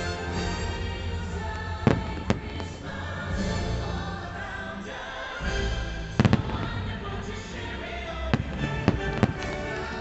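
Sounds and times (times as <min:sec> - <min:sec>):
loud show music: 0:00.0 - 0:10.0
firework shells bursting: 0:06.2 - 0:07.5, 0:08.2 - 0:10.0.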